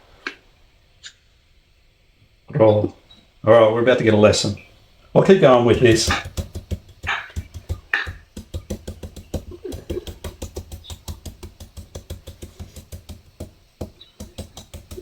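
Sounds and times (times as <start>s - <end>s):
knife chopping papaya: 5.7s - 15.0s.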